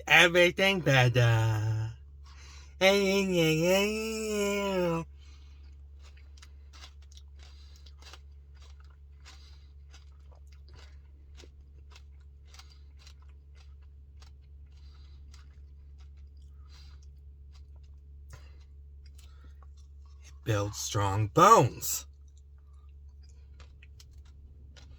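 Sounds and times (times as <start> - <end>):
low steady hum: 0.0 - 5.0
mouth chewing crunchy food: 0.0 - 24.9.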